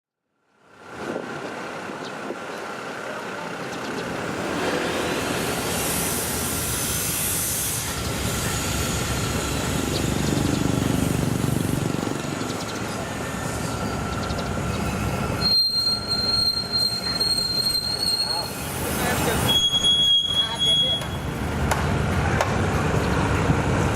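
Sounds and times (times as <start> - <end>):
train engine and wheels rumbling: 0.5 - 23.9
high wheel squeal: 4.2 - 21.5.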